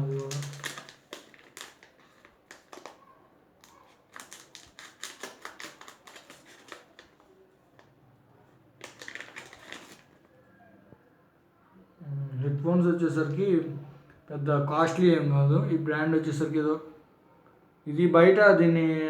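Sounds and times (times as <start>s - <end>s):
plastic packaging crinkling: 0.0s - 7.9s, 8.8s - 10.3s.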